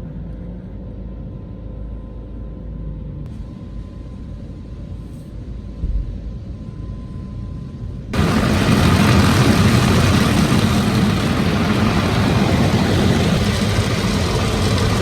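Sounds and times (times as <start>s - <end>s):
car idling: 8.2s - 15.0s
car wash machinery running: 8.2s - 15.0s.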